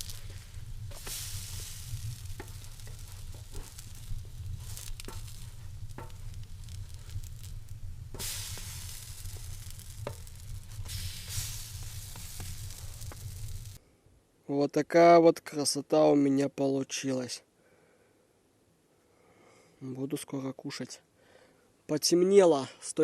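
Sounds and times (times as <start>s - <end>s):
fat spattering pops: 0.0s - 13.8s
potato pancakes sizzling in oil: 0.0s - 13.8s.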